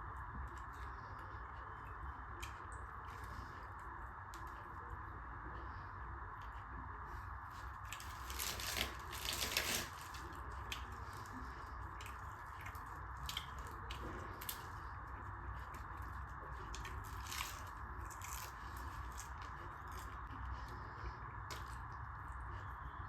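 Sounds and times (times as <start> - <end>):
wet chewing and mouth clicks: 7.5 - 23.0.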